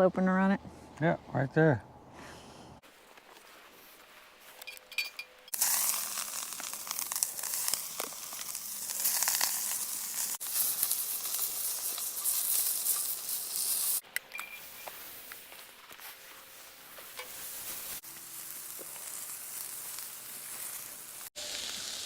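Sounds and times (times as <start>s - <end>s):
food sizzling on a griddle: 5.5s - 14.0s, 17.0s - 22.0s.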